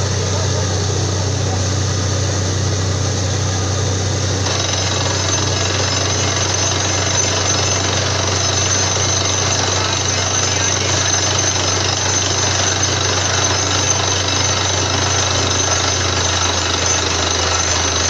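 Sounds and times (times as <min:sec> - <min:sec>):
deep engine drone: 0:00.0 - 0:18.0
drilling rig hammering: 0:04.4 - 0:18.0.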